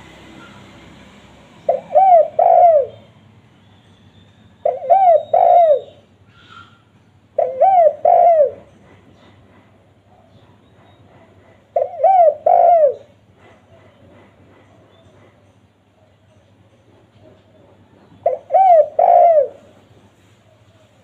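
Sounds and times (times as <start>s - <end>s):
dove cooing: 1.6s - 3.1s, 4.6s - 6.8s, 7.4s - 9.0s, 11.8s - 13.2s, 18.2s - 20.0s.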